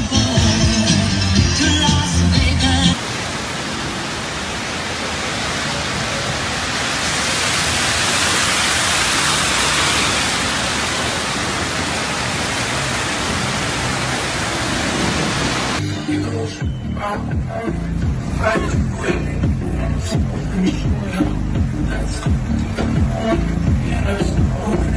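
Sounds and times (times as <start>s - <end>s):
heavy rain pouring: 2.7s - 15.8s.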